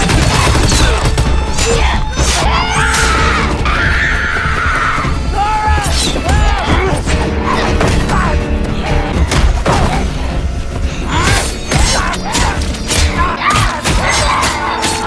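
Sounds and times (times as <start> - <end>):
action film music: 0.0 - 15.0.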